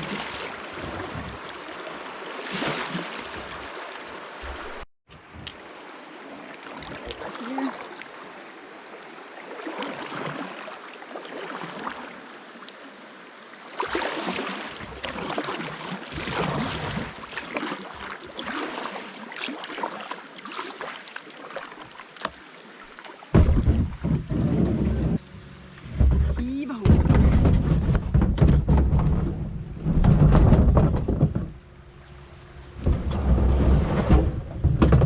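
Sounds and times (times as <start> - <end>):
water splashing around kayak: 0.0 - 35.0
loud low thump: 23.3 - 24.4, 25.9 - 31.6.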